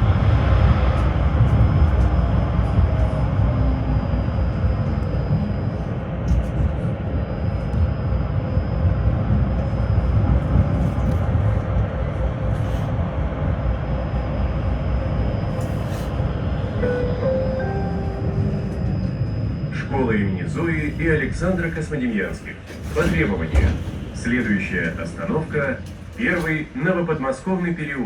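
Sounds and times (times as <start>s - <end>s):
tram rumbling on rails: 0.0s - 28.0s
faint rising whine: 13.6s - 22.2s.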